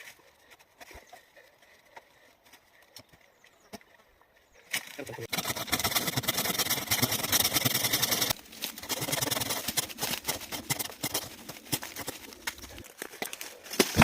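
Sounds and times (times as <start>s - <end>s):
saw rasping through log: 5.3s - 12.2s.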